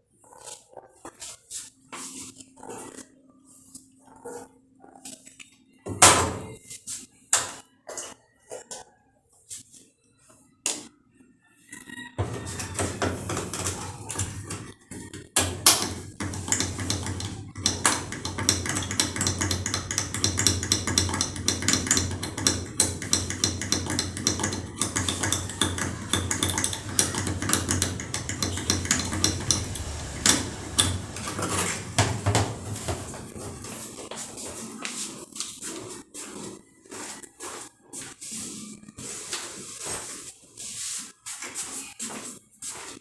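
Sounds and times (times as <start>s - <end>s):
metal tools clicking on metal: 12.5s - 32.4s.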